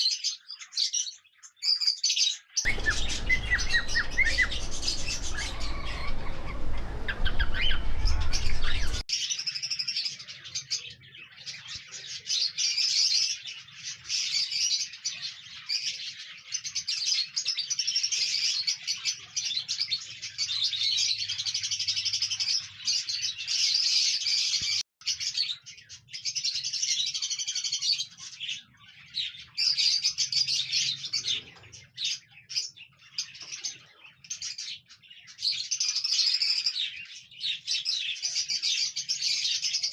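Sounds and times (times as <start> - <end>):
cockatiels chirping: 0.2 - 21.6
loud low rumble: 2.7 - 9.0.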